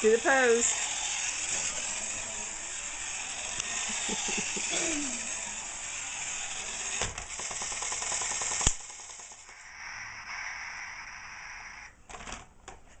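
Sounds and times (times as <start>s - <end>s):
toy train clattering on track: 0.0s - 9.6s
steady hiss: 8.6s - 12.0s.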